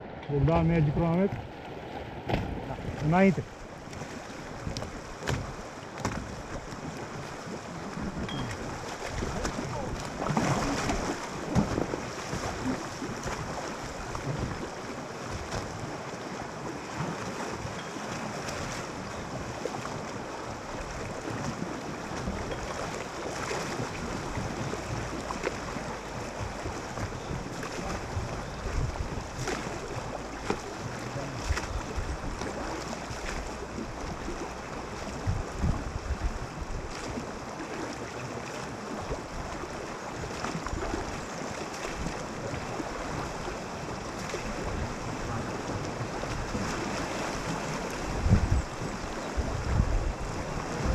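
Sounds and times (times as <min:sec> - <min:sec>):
river water rushing and splashing: 0:00.0 - 0:50.9
wind buffeting microphone: 0:23.7 - 0:37.2, 0:42.0 - 0:50.9.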